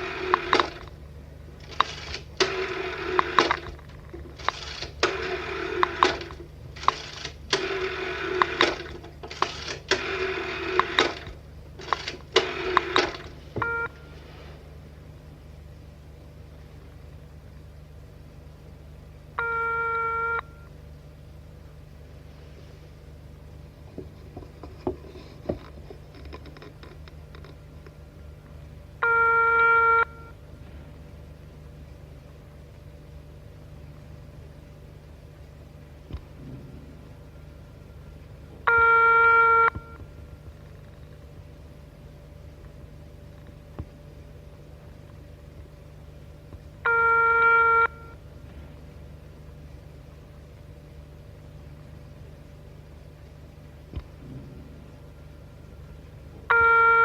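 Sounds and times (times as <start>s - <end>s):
steady low hum: 0.0s - 57.0s
telephone bell ringing: 13.6s - 14.2s, 19.4s - 20.7s, 29.0s - 30.4s, 38.7s - 40.0s, 46.9s - 48.2s, 56.5s - 57.0s.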